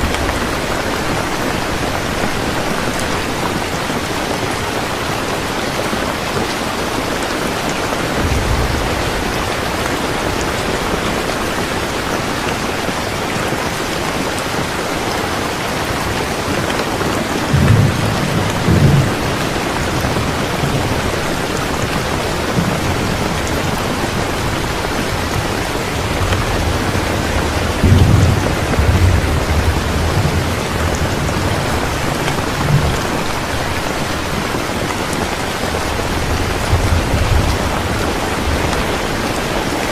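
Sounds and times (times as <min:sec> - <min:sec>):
steady rain falling: 0:00.0 - 0:39.9
thunder rumbling: 0:06.8 - 0:13.6, 0:15.8 - 0:39.9.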